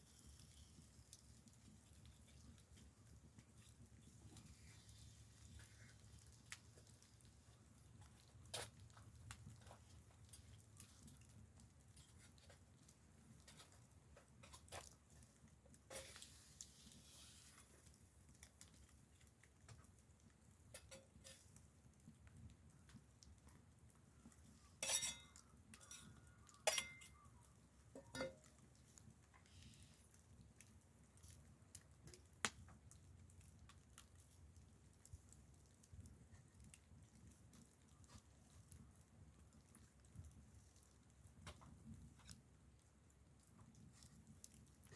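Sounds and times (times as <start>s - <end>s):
faint small clicks and crackles: 0.0s - 44.9s.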